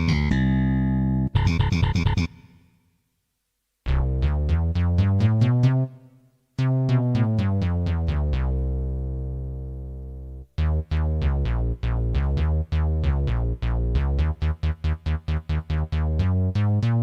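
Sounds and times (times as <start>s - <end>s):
electronic keyboard notes: 0.0s - 2.5s, 6.6s - 17.0s.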